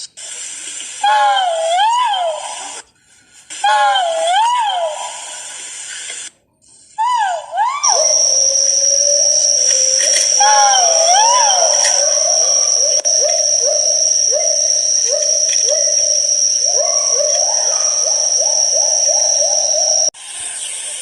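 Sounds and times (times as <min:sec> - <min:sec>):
pheasant long call: 0:07.8 - 0:20.1
steady high-pitched whine: 0:07.8 - 0:21.0
quiet hiss: 0:07.9 - 0:20.8.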